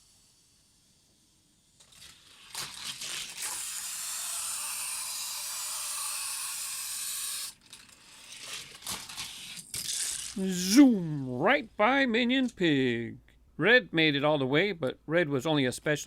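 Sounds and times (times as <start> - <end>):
toy car wheels whirring on track: 0.0 - 10.4
toy cars clicking and knocking: 0.1 - 10.4.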